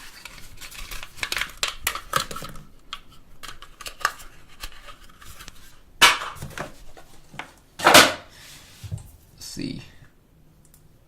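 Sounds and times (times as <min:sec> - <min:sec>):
packaging rustle: 0:00.0 - 0:02.7
plastic packaging clicks and crinkles: 0:00.0 - 0:06.7.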